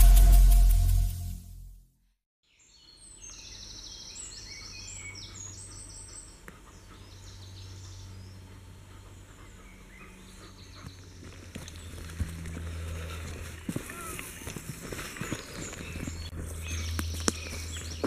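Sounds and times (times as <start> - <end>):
intro music: 0.0 - 1.9
small birds singing: 2.4 - 18.0.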